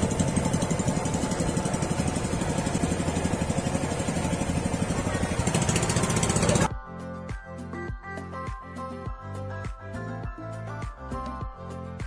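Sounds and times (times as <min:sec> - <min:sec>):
boat engine throbbing: 0:00.0 - 0:06.7.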